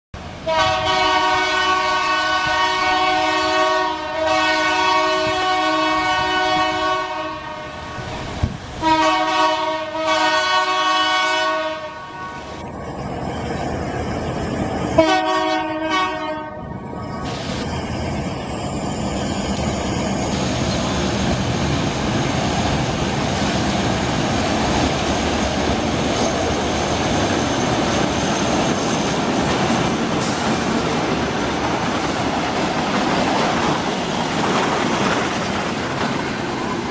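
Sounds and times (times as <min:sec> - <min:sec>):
diesel locomotive engines: 0:00.1 - 0:36.9
locomotive air horn blasts: 0:00.4 - 0:08.2, 0:08.8 - 0:12.6, 0:15.0 - 0:16.8.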